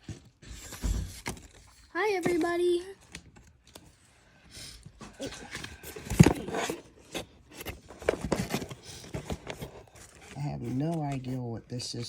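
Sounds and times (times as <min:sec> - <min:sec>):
rustling: 0:05.4 - 0:12.0.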